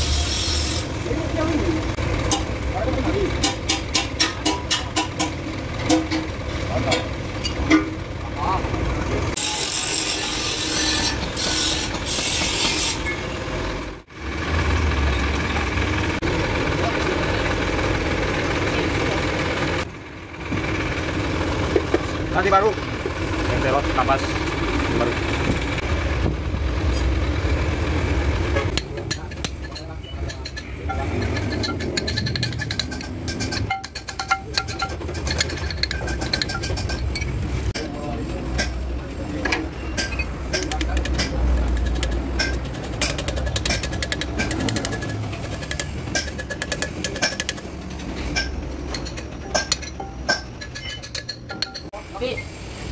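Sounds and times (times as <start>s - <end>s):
diesel engine idling: 0.0s - 9.4s, 13.2s - 50.7s
sharp clicks and clinks: 28.7s - 37.9s, 39.4s - 52.0s.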